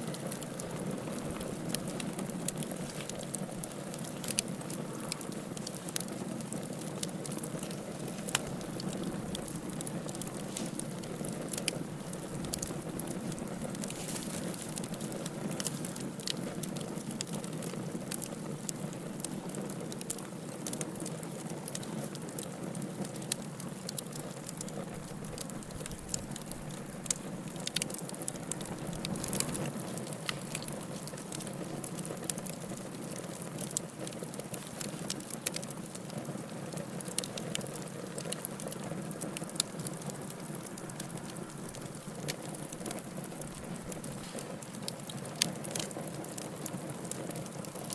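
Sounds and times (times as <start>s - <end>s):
fire crackling and popping: 0.0s - 47.9s
low rush of flames: 0.0s - 47.9s.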